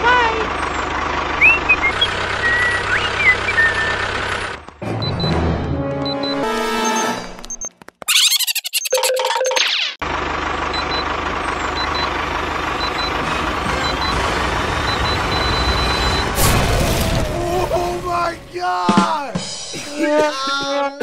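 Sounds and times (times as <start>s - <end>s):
tractor engine running: 0.0s - 8.3s, 10.0s - 18.5s
bomb timer beeps: 6.0s - 7.7s
cartoon effects falling in pitch: 8.1s - 10.0s
explosion sound effect: 16.4s - 18.5s.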